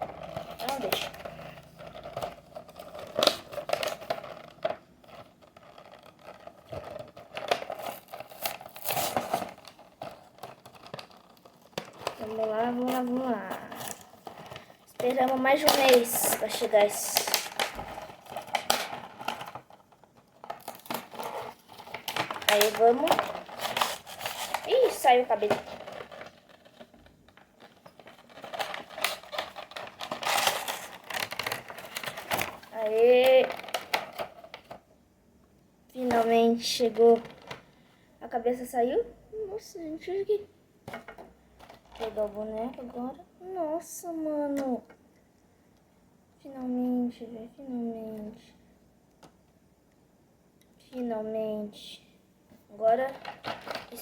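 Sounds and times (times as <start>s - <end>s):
packaging crinkling: 0.0s - 34.8s, 53.0s - 54.0s
cardboard box being torn open: 7.4s - 9.8s, 28.3s - 32.7s.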